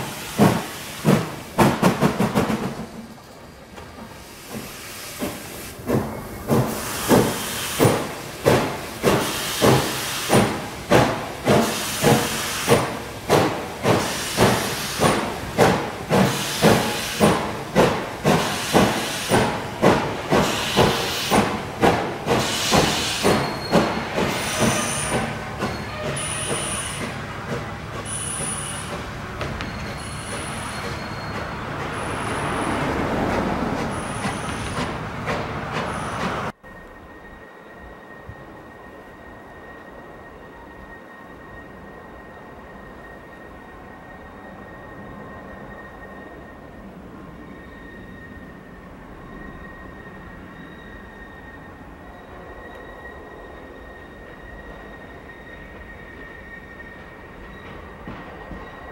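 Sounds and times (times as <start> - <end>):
steam locomotive chuffing: 0.0 - 3.2, 3.8 - 36.9
train rolling noise: 0.0 - 58.9.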